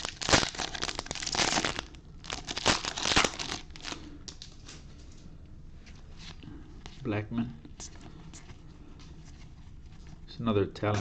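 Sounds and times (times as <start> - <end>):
foil wrappers crinkling and tearing: 0.0 - 4.6.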